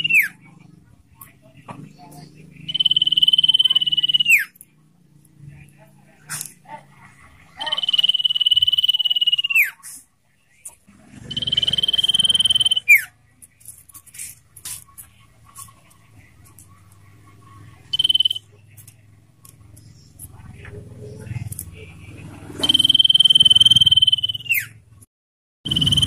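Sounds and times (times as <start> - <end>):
bird singing long trill: 2.6 - 4.6, 7.6 - 9.7, 11.3 - 13.1, 17.9 - 18.5, 25.7 - 26.0.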